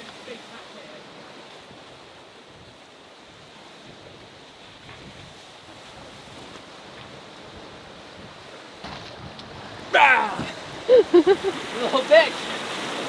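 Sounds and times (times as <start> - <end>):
sea washing around boat: 0.0 - 13.0
wind on microphone: 2.5 - 11.8.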